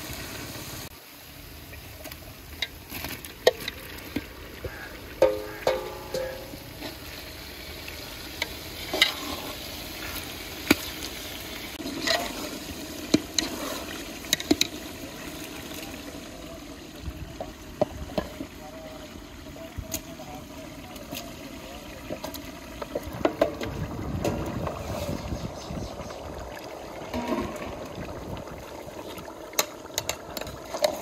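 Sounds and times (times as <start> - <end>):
vegetables sizzling in hot oil: 0.0 - 18.5
spatula knocking against pot: 5.2 - 6.6.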